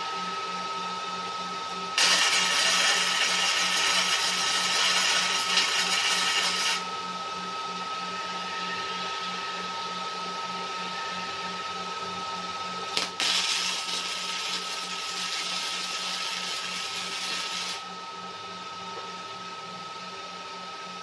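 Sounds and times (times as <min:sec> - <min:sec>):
machine hum with high whine: 0:00.0 - 0:21.0
welding arc hissing crackle: 0:02.0 - 0:06.8, 0:12.9 - 0:17.8.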